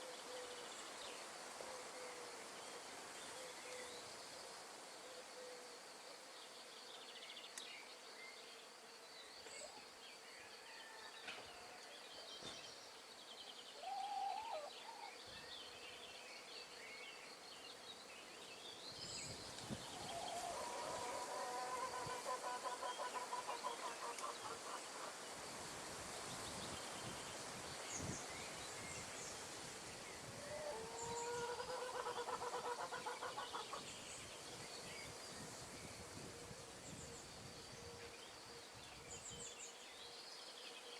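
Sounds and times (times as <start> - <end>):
wind in trees: 0.0 - 40.9.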